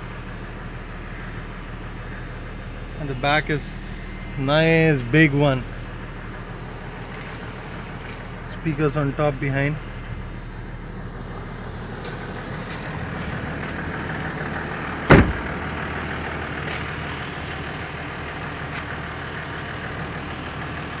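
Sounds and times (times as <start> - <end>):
car engine idling: 0.0 - 21.0
faint high whine: 0.7 - 13.6
loud thump: 15.1 - 15.6.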